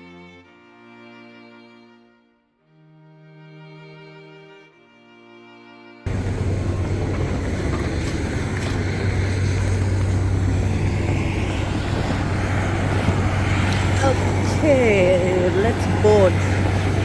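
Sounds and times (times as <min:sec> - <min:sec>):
soft string music: 0:00.0 - 0:17.0
loud engine rumble: 0:06.1 - 0:17.0.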